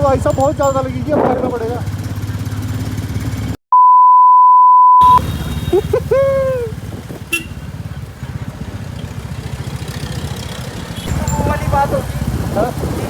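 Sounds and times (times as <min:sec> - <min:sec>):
motorcycle engine pulsing: 0:00.0 - 0:03.6, 0:05.0 - 0:13.0
censor bleep: 0:03.7 - 0:05.2.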